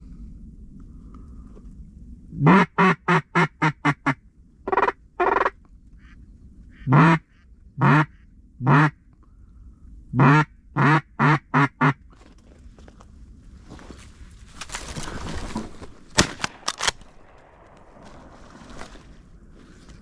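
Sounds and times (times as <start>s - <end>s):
duck quacking: 2.4s - 9.0s, 10.1s - 12.0s.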